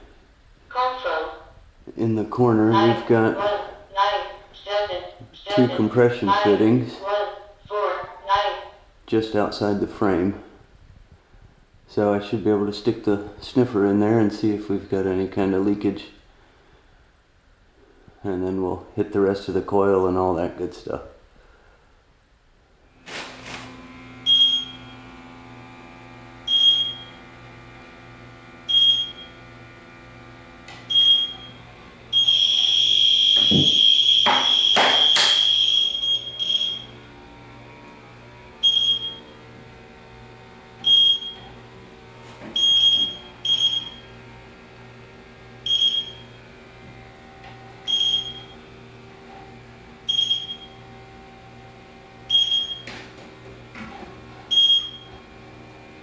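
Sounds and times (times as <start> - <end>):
continuous loud alarm tone: 24.2 - 25.0, 30.9 - 37.1, 38.6 - 39.3, 40.8 - 41.5, 42.5 - 44.2, 45.6 - 46.4, 47.8 - 48.6, 50.0 - 50.8, 52.3 - 53.0, 54.5 - 55.2
leak detector beeping: 24.2 - 25.1, 26.4 - 27.2, 28.7 - 29.4, 30.9 - 37.0, 38.6 - 39.4, 40.8 - 41.6, 42.6 - 44.2, 45.6 - 46.4, 47.8 - 48.6, 50.1 - 50.8, 52.3 - 53.0, 54.5 - 55.2.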